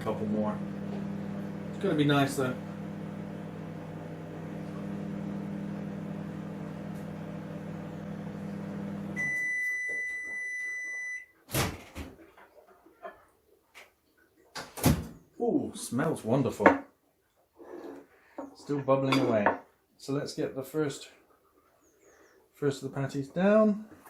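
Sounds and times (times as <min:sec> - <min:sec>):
microwave oven humming: 0:00.0 - 0:10.9
long microwave beep: 0:08.7 - 0:11.3.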